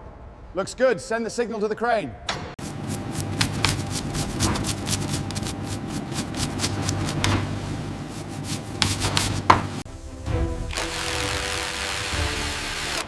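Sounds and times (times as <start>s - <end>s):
heavy machinery humming: 10.6s - 13.0s.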